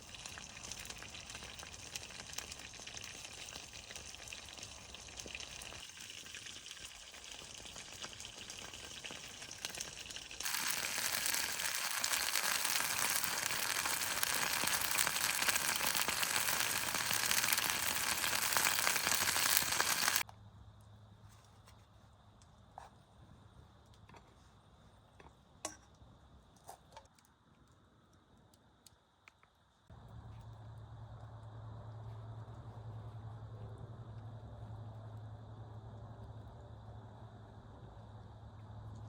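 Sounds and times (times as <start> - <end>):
food sizzling in a pan: 0.0 - 20.2.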